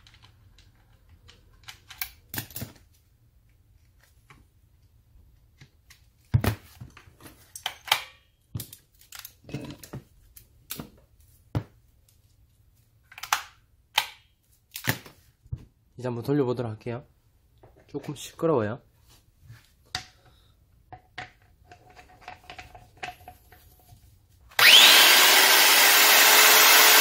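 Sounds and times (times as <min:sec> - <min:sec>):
clicks and knocks of small parts: 0:00.0 - 0:04.4, 0:06.8 - 0:11.0, 0:13.0 - 0:15.1.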